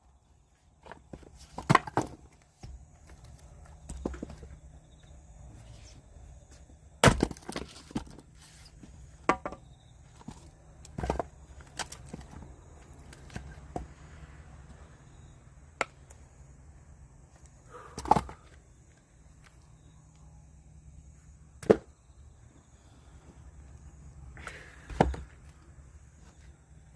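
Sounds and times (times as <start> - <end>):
wooden knocks and cracks: 7.0 - 8.2.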